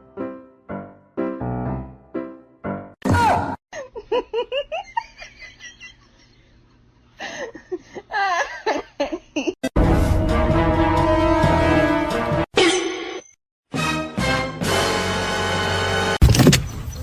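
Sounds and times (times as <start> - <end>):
person laughing: 3.7 - 6.5, 7.2 - 9.7.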